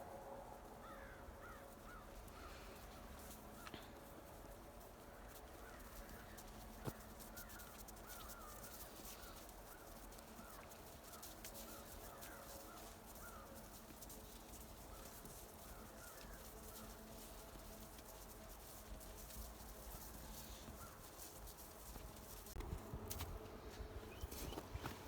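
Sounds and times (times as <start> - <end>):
faint bird calls: 0.8 - 4.0.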